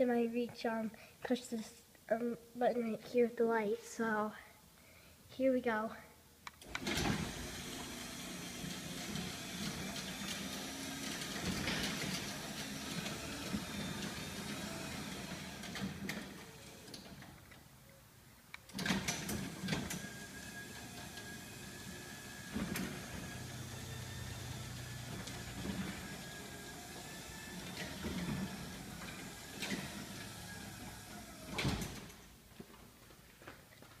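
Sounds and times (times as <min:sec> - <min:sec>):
garage door opener humming: 0:06.6 - 0:17.6, 0:18.7 - 0:32.4.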